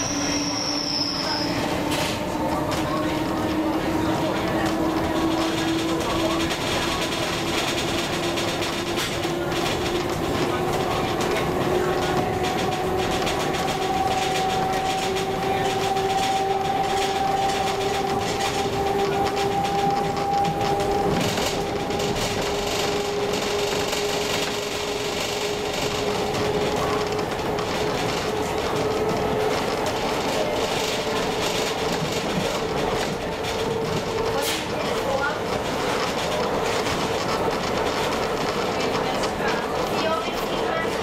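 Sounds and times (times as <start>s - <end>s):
train whine rising in pitch: 0.0s - 3.9s
train wheels rumbling on rails: 0.0s - 41.0s.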